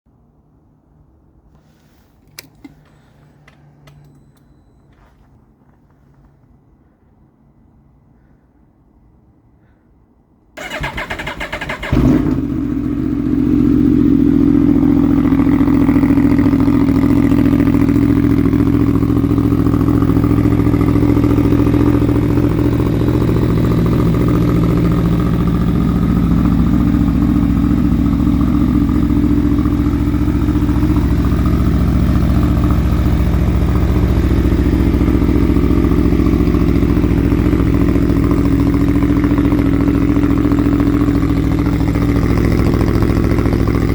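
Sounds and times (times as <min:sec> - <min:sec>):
motorcycle starter cranking: 0:10.6 - 0:12.2
motorcycle engine idling: 0:10.6 - 0:43.9.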